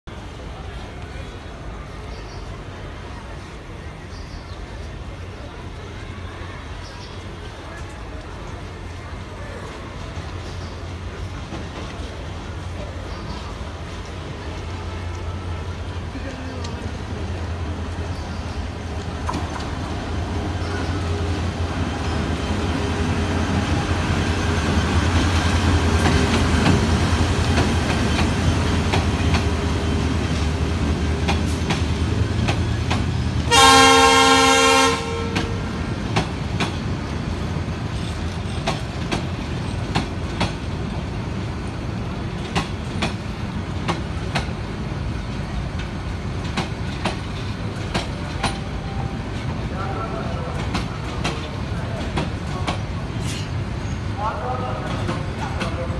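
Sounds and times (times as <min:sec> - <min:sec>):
locomotive engine rumble: 0:00.2 - 0:55.9
train horn: 0:33.5 - 0:35.7.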